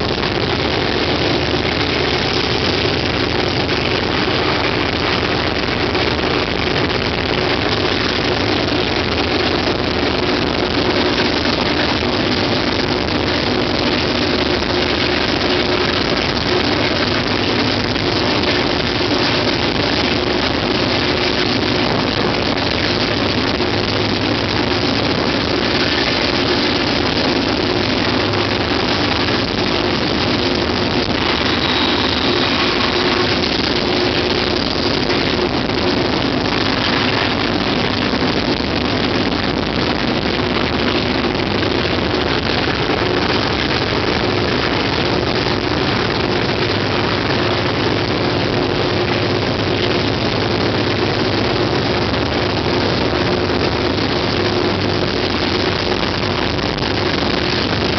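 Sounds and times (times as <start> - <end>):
diesel locomotive engine droning: 0.0 - 55.6
wheels rushing on track: 25.2 - 38.8.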